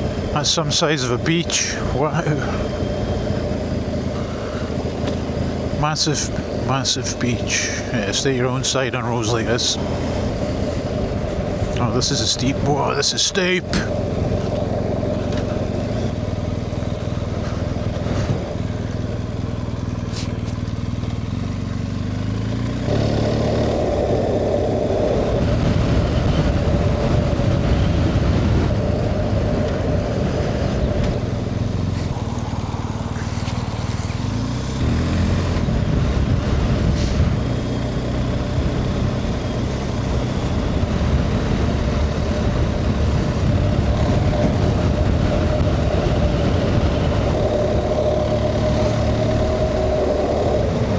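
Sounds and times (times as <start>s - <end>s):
motorcycle engine riding: 0.0s - 50.9s
wind rush: 22.9s - 50.9s.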